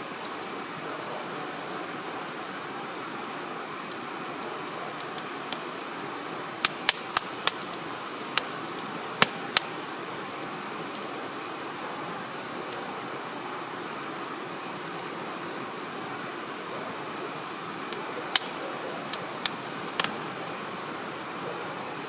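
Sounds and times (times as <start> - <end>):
wood fire hissing: 0.1 - 22.0
firewood crackling pops: 6.6 - 7.8, 8.4 - 9.7, 17.9 - 20.2.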